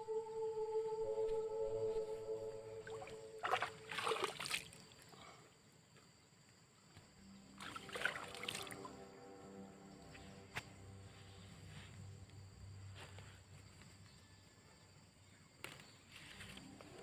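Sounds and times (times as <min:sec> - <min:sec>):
sustained drone music: 0:00.0 - 0:04.8, 0:07.2 - 0:14.2, 0:16.4 - 0:17.0.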